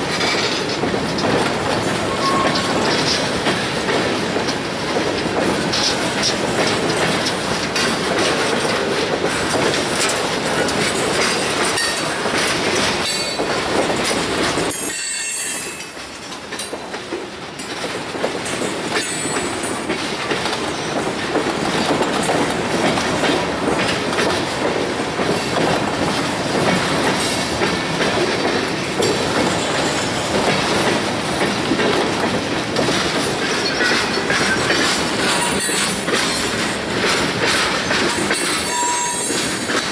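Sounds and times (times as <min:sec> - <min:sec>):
train wheels clattering over rail joints: 0:00.0 - 0:39.9
train wheels squealing: 0:01.9 - 0:03.2, 0:14.7 - 0:16.0, 0:33.6 - 0:36.5, 0:38.2 - 0:39.9.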